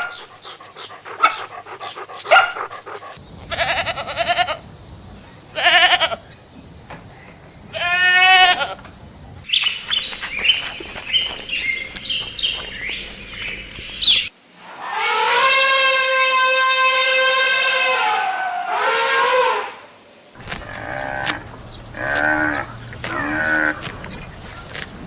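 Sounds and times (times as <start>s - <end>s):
wavering animal calls: 0.0s - 6.2s
long steady animal call: 0.0s - 6.6s, 7.6s - 9.4s
bird chirping: 0.0s - 8.0s, 8.6s - 14.3s.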